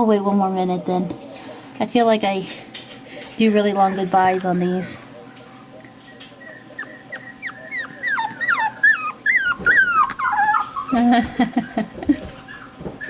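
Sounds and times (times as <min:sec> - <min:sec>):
puppies whining and grumbling: 0:03.0 - 0:13.0
puppies whimpering: 0:03.5 - 0:13.0.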